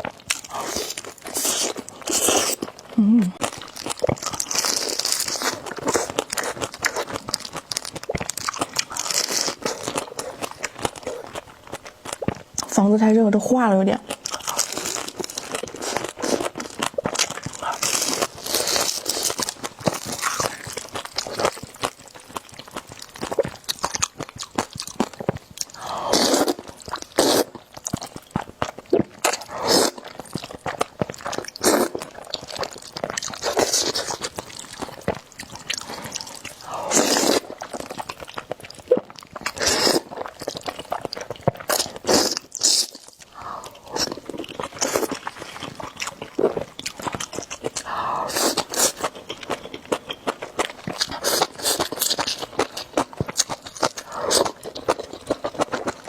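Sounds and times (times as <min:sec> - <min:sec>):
chewing noodles: 0:00.0 - 0:12.8, 0:14.0 - 0:56.0
slurping noodles: 0:29.4 - 0:30.0, 0:36.1 - 0:37.6.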